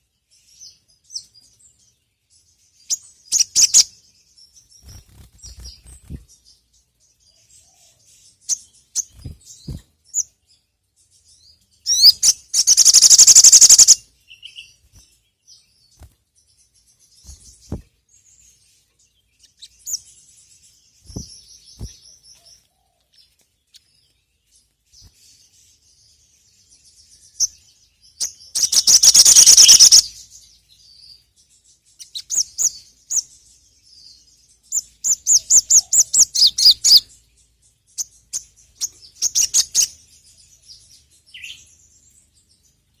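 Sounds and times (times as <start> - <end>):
bird chirps and trills: 0.0 - 43.0.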